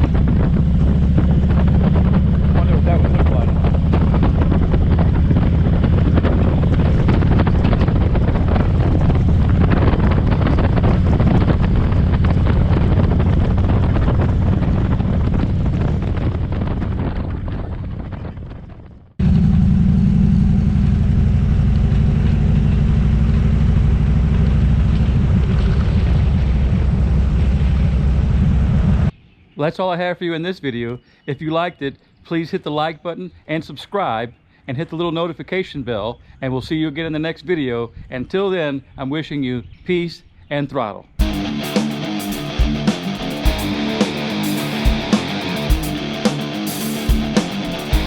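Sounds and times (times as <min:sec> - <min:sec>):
motorcycle engine running: 0:00.0 - 0:29.1, 0:41.2 - 0:48.0
wind buffeting microphone: 0:00.0 - 0:29.2.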